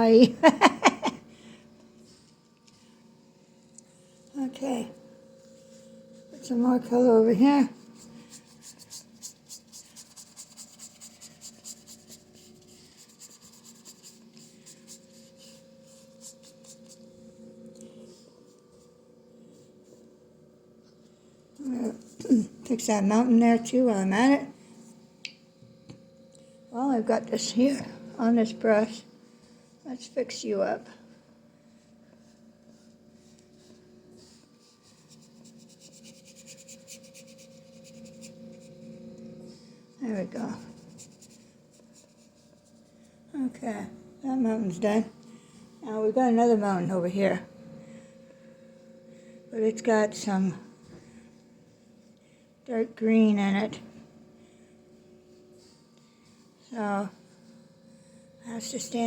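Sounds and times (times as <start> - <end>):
faint steady hum: 0.0 - 59.0
paintbrush strokes on canvas: 4.9 - 20.2, 31.6 - 43.2.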